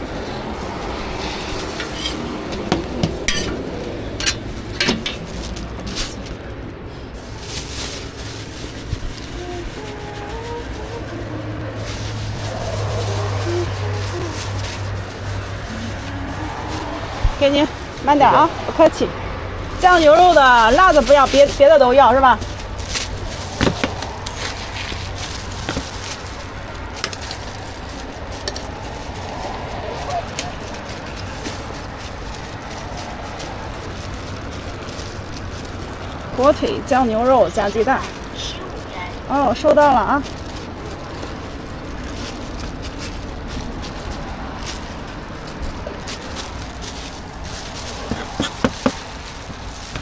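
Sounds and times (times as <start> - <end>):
steady low rumble: 0.0 - 50.0
metal utensils clinking on pans: 1.8 - 5.3.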